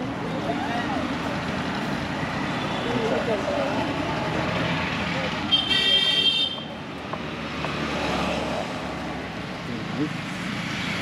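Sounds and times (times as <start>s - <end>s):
car horn: 5.5s - 6.7s.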